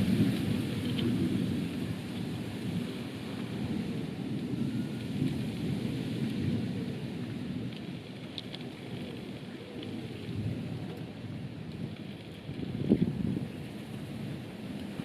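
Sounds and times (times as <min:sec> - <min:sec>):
low rumble of thunder: 0:00.0 - 0:08.0, 0:08.6 - 0:15.0
steady rain falling: 0:00.0 - 0:15.0
raindrop ticks: 0:07.6 - 0:13.1.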